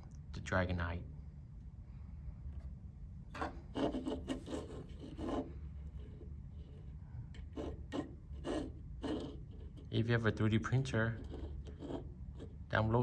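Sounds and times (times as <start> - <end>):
steady low hum: 0.0 - 13.0
scraping rubbing handling noise: 2.5 - 12.8.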